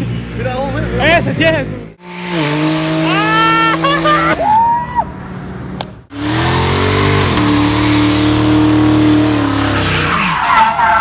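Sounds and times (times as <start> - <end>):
car engine revving: 1.6 - 4.4, 5.3 - 11.0.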